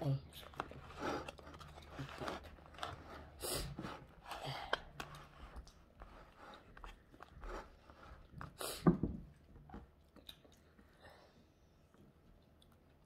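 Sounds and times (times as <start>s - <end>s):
person chewing wetly: 9.3s - 11.0s.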